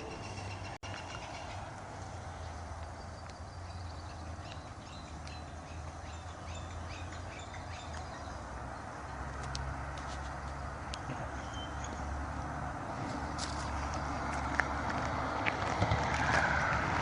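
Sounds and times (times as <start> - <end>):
small birds chirping: 0.0 - 9.3.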